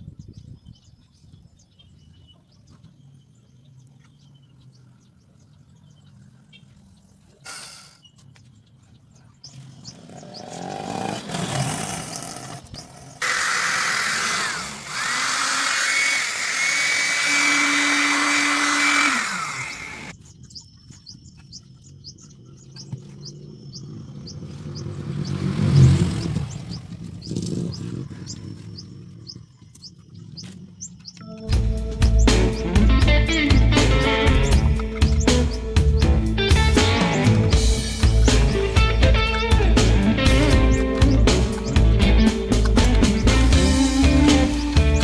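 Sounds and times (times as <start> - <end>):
small birds chirping: 0.0 - 45.0
motor drill whining: 13.2 - 20.1.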